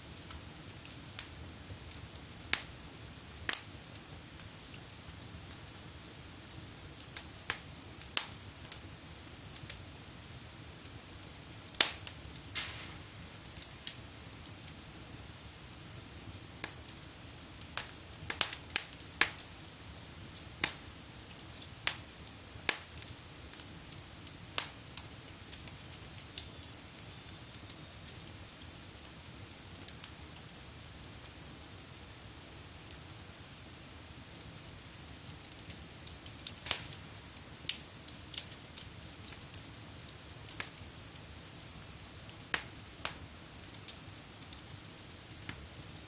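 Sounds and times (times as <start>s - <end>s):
wood fire crackling and popping: 0.0s - 46.0s.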